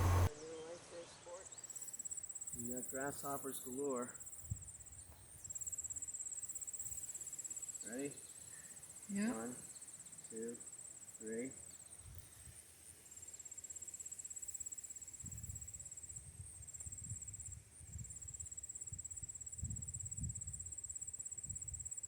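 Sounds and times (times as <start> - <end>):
low rumbling: 0.0 - 0.3
insects chirring: 1.4 - 22.0.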